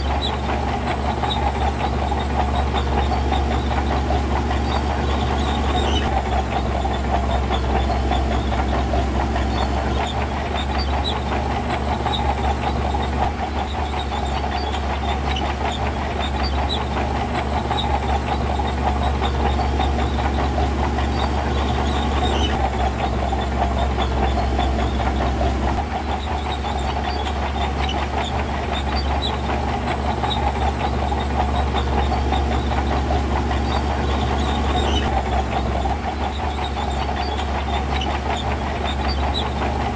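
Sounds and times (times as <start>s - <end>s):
diesel engine of heavy machinery: 0.0s - 39.9s.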